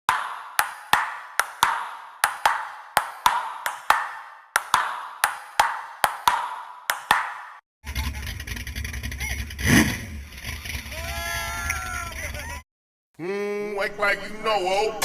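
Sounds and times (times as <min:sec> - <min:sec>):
sharp ringing percussive hits: 0:00.1 - 0:07.6.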